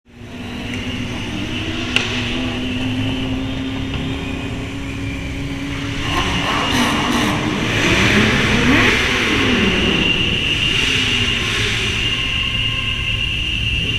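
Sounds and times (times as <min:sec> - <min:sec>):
motorcycle engine running: 0:00.1 - 0:13.9.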